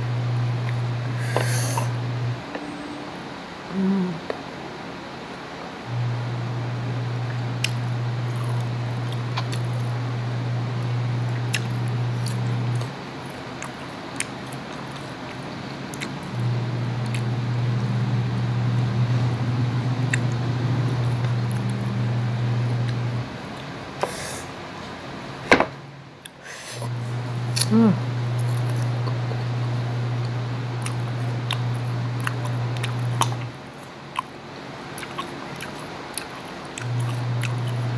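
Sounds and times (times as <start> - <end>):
steady low hum: 0.0 - 37.9
crunchy chewing: 7.3 - 10.0, 10.8 - 16.4, 17.0 - 17.4, 28.3 - 29.2, 30.2 - 37.9.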